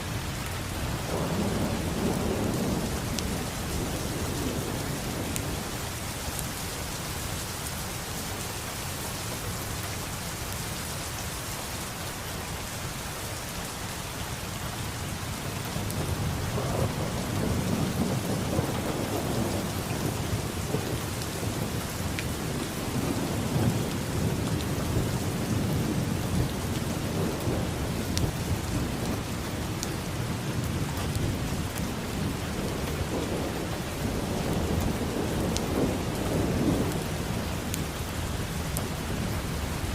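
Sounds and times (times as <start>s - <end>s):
rain falling: 0.0s - 39.9s
thunder rumbling: 0.4s - 7.6s, 15.4s - 39.9s.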